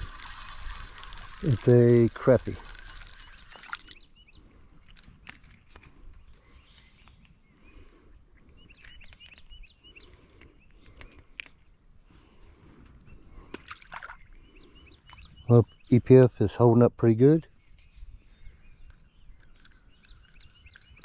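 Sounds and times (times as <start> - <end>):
fishing rod clicks and rustles: 0.0 - 11.8, 17.6 - 21.0
small birds chirping: 0.0 - 21.0.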